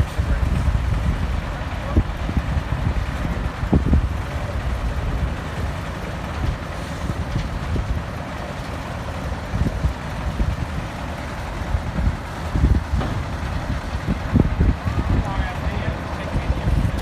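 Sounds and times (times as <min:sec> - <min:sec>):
wind gusts on microphone: 0:00.0 - 0:05.4, 0:09.5 - 0:17.0
dump truck diesel engine: 0:00.0 - 0:17.0.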